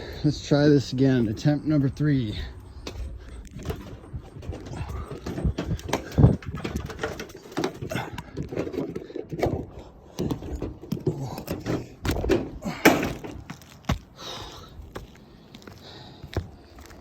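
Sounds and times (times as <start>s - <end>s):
knocks and thumps: 2.8s - 14.1s.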